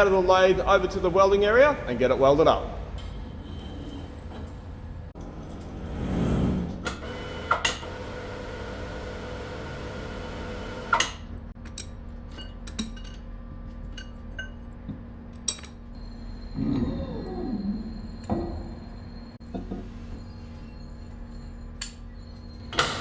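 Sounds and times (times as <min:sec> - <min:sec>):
steady mechanical hum: 0:00.0 - 0:23.0
metallic clinks and knocks: 0:11.6 - 0:16.0.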